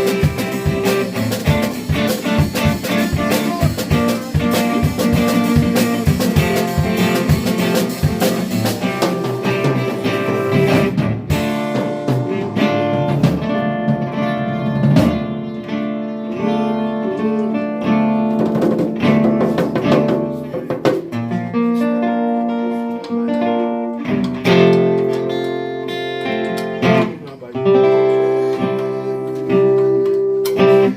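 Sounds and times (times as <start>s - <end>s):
drum hits: 0.0s - 15.3s, 18.4s - 21.3s
live band guitar music: 0.0s - 30.9s.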